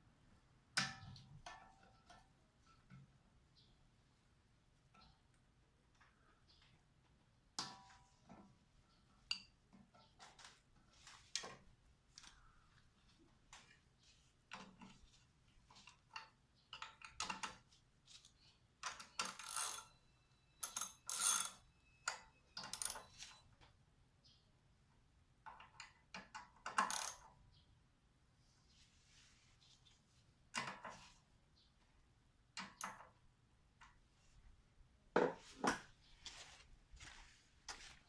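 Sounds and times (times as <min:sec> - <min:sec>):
metal parts and tools clinking: 0:18.8 - 0:21.6.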